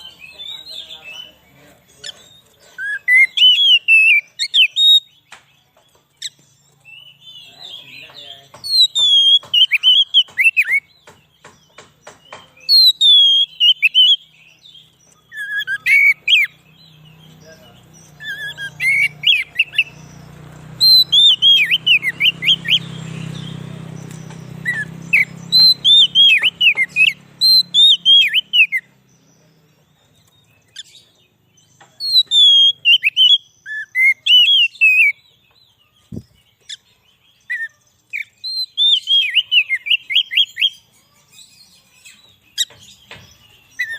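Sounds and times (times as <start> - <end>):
bird singing whistled notes: 0.0 - 43.9.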